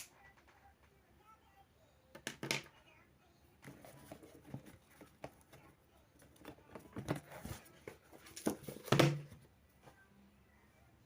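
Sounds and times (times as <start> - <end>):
knocks and rustles of handling: 3.6 - 10.0.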